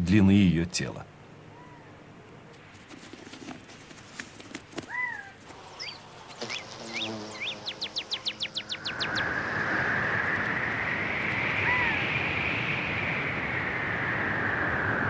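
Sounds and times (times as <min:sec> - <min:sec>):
rapid bird trill: 0:04.8 - 0:09.6
bird chirps: 0:04.9 - 0:09.5.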